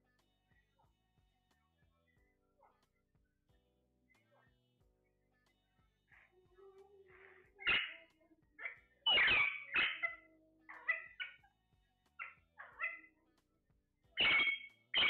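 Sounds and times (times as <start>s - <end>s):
parrot squawking: 7.1s - 11.5s, 12.2s - 13.1s, 14.2s - 15.0s.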